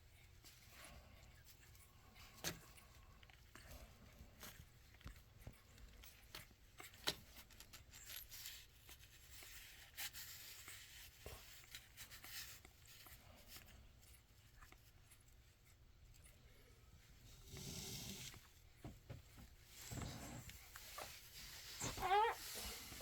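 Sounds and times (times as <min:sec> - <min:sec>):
rustling: 0:00.0 - 0:23.0
puppies suckling wet clicks: 0:00.3 - 0:16.6.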